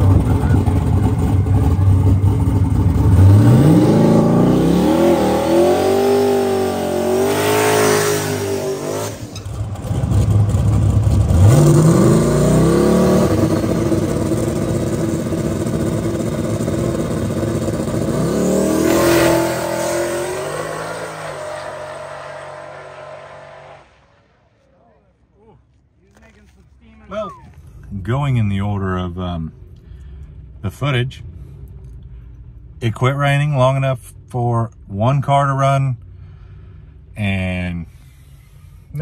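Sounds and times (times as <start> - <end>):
race car engine revving: 0.0 - 24.3.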